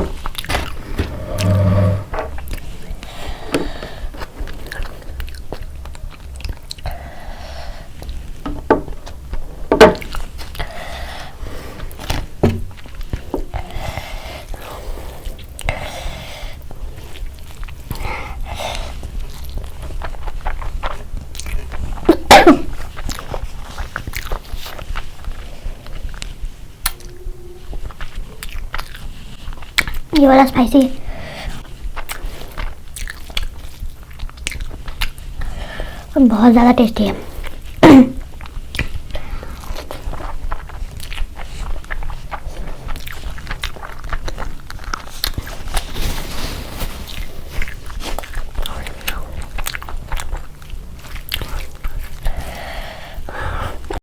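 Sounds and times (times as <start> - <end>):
person biting and chewing food: 0.0 - 7.1
chewing clicks and mouth smacks: 4.4 - 6.9, 19.2 - 22.1, 22.7 - 26.3, 31.9 - 35.4, 37.5 - 45.9, 47.1 - 52.6.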